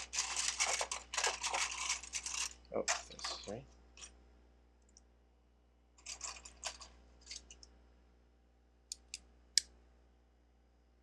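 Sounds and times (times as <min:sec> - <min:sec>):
plastic pieces clattering: 0:00.0 - 0:03.5, 0:06.0 - 0:07.6.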